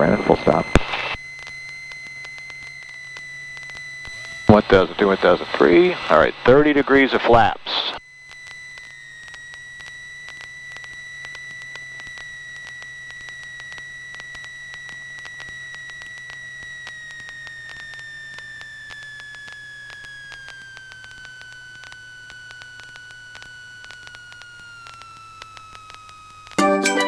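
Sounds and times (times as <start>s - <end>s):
low engine drone: 4.1s - 8.0s.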